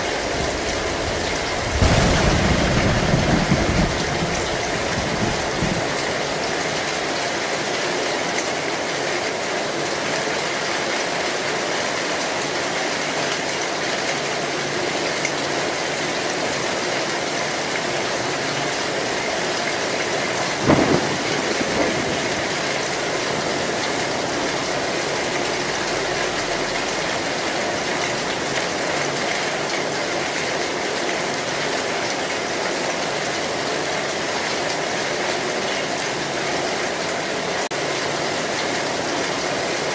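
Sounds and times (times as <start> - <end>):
heavy rain on a metal roof: 0.0 - 39.9
thunder cracking: 0.1 - 6.8, 20.3 - 28.6.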